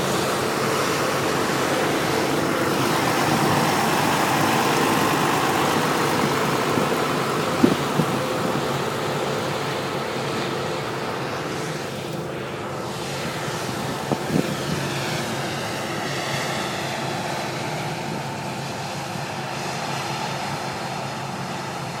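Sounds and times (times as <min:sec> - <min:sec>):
combine harvester running: 0:00.0 - 0:22.0.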